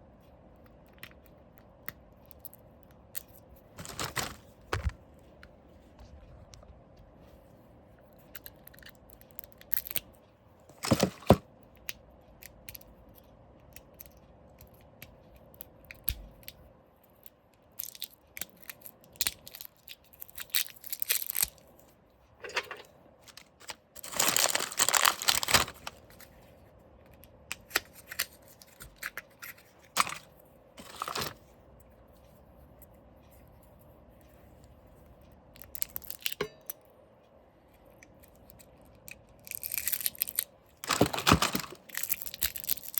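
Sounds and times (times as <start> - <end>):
packaging tearing and crinkling: 3.8 - 4.9, 10.7 - 11.4, 17.8 - 21.6, 23.2 - 26.0, 30.8 - 31.4, 39.4 - 42.9.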